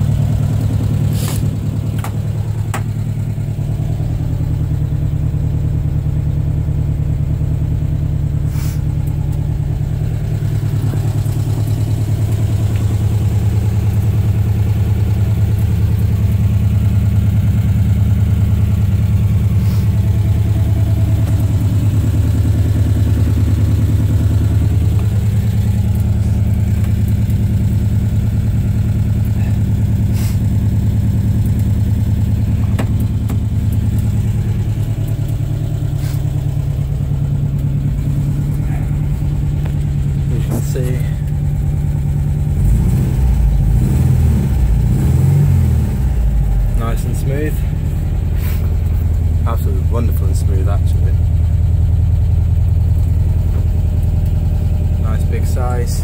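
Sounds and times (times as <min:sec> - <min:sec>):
van engine idling: 0:00.0 - 0:56.0.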